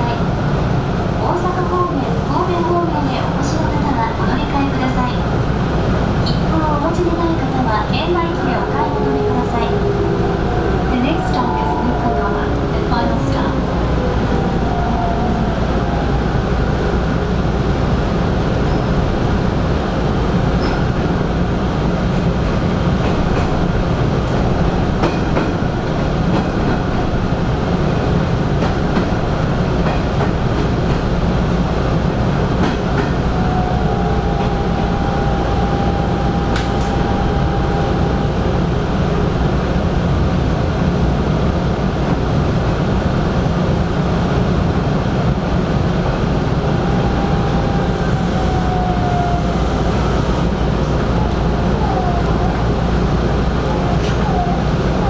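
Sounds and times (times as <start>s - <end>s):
electric train rumbling: 0.0s - 55.0s
high whine: 33.3s - 39.6s.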